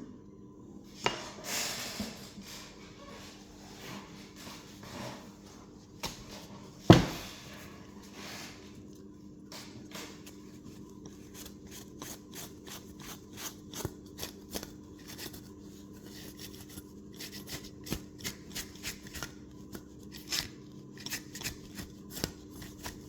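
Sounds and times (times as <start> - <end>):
faint hum: 0.0 - 17.7.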